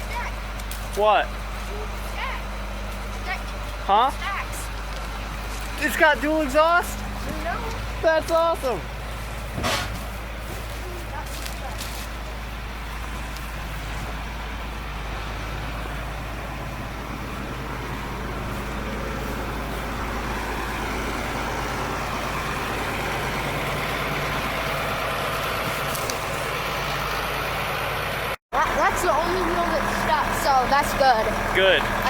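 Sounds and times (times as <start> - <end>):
heavy truck engine running: 0.0 - 32.0.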